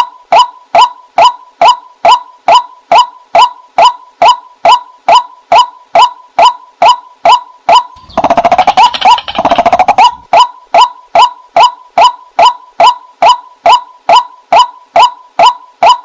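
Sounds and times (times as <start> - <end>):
waterhen calling: 8.0 - 10.5.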